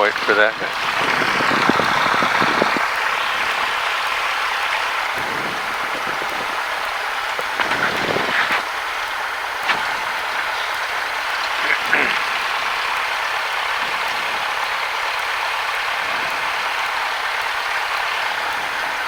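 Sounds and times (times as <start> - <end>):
airplane cockpit hiss: 0.0 - 14.6.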